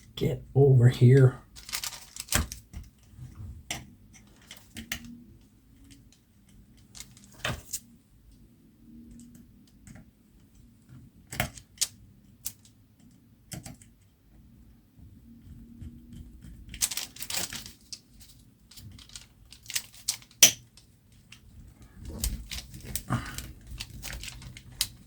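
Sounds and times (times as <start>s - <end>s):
small metal parts clicking: 16.7s - 21.4s.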